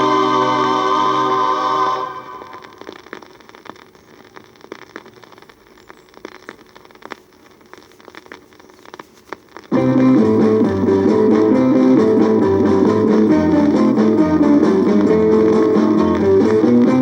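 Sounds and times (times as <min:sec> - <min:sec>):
vinyl record crackle and clicks: 0:00.0 - 0:17.0
strummed electric guitar over bass: 0:09.7 - 0:17.0.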